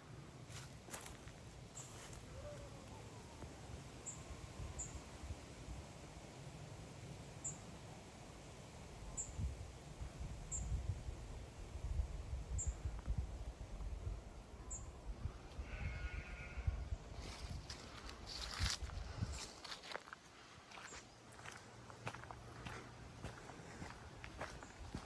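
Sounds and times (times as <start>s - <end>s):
wind rumbling on microphone: 8.9s - 19.8s
sheep bleat: 15.6s - 16.7s.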